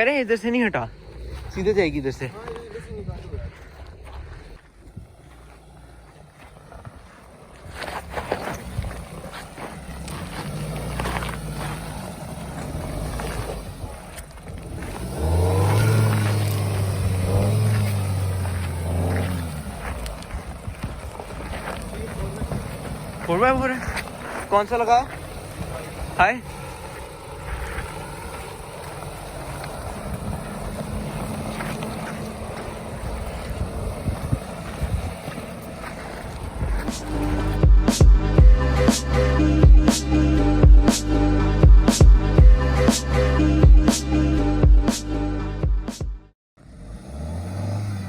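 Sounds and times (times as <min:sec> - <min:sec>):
car engine revving: 0:00.0 - 0:48.0
wind noise on microphone: 0:32.9 - 0:38.6.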